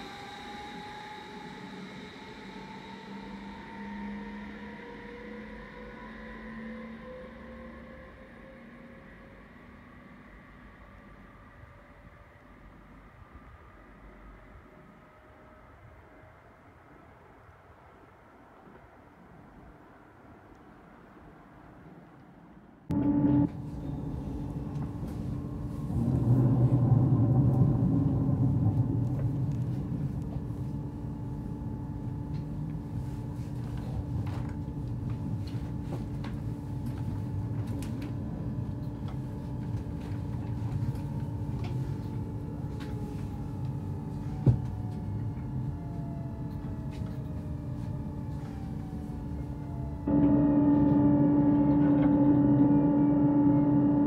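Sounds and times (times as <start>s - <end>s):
train drive whine: 0.0s - 15.0s, 15.6s - 54.0s
train wheels rumbling on track: 22.9s - 32.9s.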